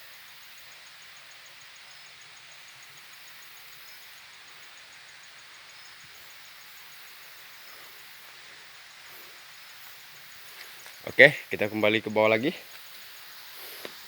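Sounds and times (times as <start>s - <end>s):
faint forest hiss: 0.0s - 14.0s
insect calling in fast pulses: 0.8s - 14.0s.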